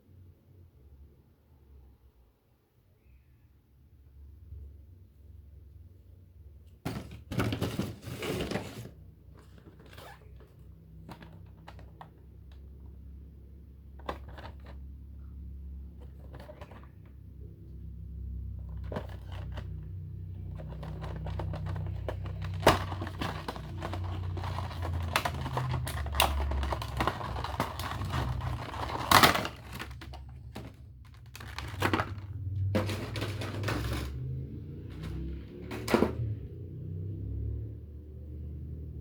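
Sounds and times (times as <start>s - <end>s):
packaging rustling and crinkling: 20.5s - 34.2s.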